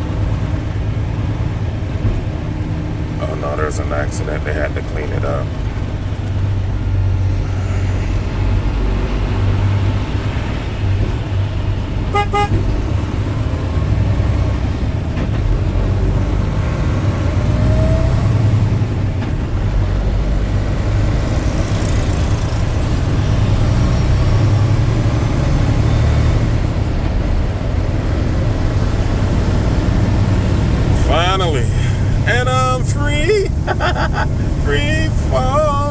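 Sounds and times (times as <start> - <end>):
road and engine noise in car: 0.0 - 35.9
pulsed horn beep: 12.2 - 12.6.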